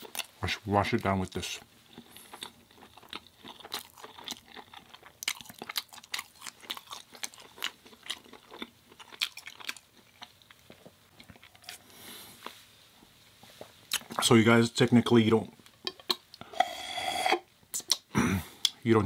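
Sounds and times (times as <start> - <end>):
wet chewing and crunching: 0.0 - 11.9, 13.9 - 14.3.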